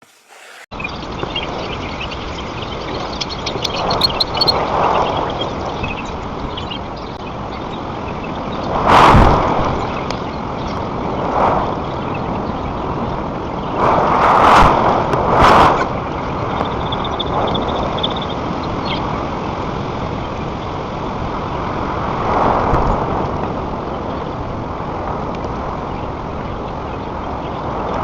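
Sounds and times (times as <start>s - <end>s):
wind roaring over microphone: 0.6s - 28.0s.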